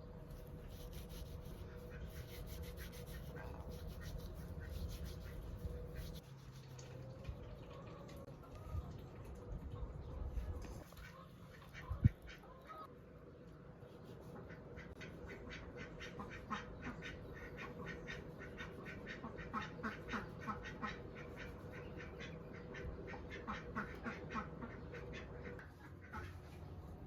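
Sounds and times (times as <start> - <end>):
steady hum: 0.0 - 6.3.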